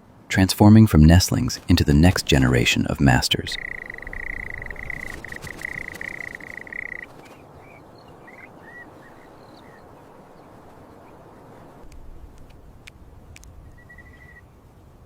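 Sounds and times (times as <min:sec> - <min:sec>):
background hiss: 0:00.0 - 0:15.0
faint clicks: 0:03.5 - 0:07.4.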